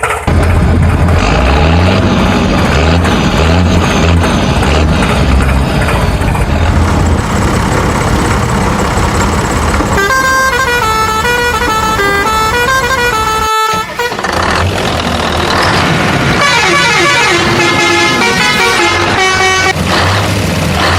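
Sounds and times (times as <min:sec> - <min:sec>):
heavy engine running: 0:00.0 - 0:20.9
horn honking: 0:09.8 - 0:15.2, 0:16.1 - 0:19.8
horn playing a tune: 0:09.9 - 0:14.4, 0:16.3 - 0:19.8.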